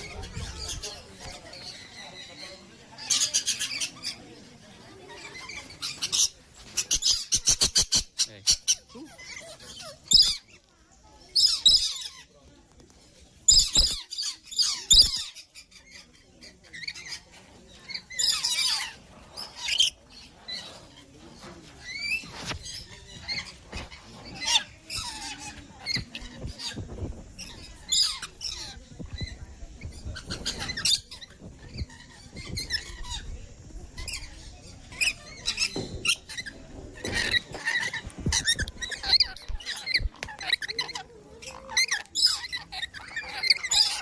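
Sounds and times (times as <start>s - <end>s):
birds squawking: 29.9s - 44.0s.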